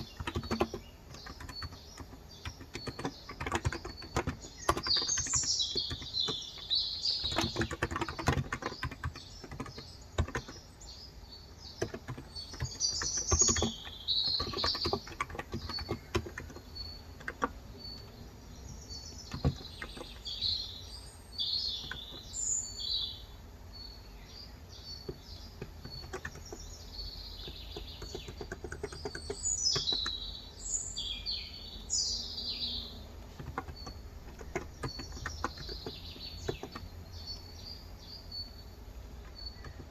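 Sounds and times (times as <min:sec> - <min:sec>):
keyboard typing: 0:00.0 - 0:10.8, 0:11.7 - 0:18.2, 0:19.0 - 0:20.4, 0:21.7 - 0:22.4, 0:25.0 - 0:30.4, 0:32.9 - 0:37.0, 0:39.1 - 0:39.9
small birds chirping: 0:00.0 - 0:39.9.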